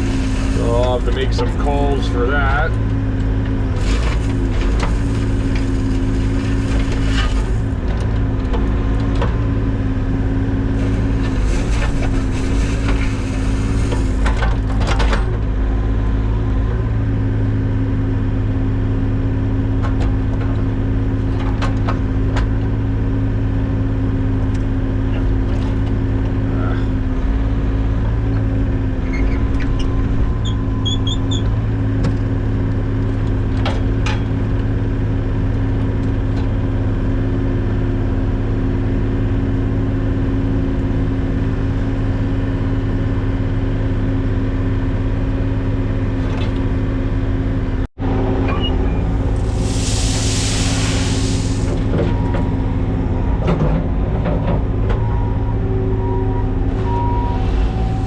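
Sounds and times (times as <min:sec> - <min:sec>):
construction equipment engine running: 0:00.0 - 0:58.0
short hiss: 0:49.4 - 0:51.8.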